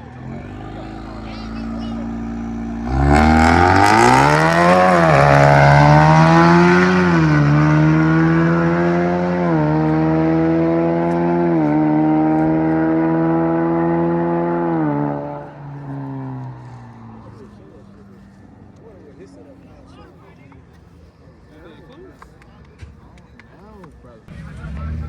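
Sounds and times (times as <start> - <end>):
car engine accelerating hard: 0.0 - 18.9, 24.3 - 25.0.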